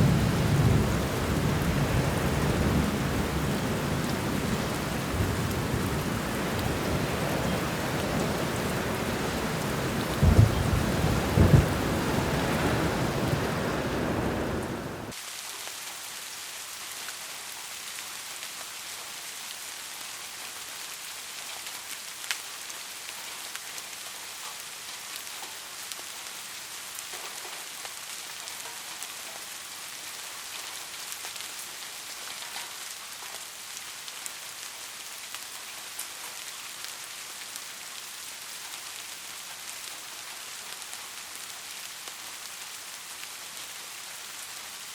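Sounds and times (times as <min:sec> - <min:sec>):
rolling thunder: 0:00.0 - 0:15.1
heavy rain: 0:00.0 - 0:44.9
rain pattering with drips: 0:00.0 - 0:44.9
sharp thunder cracks: 0:08.4 - 0:15.1.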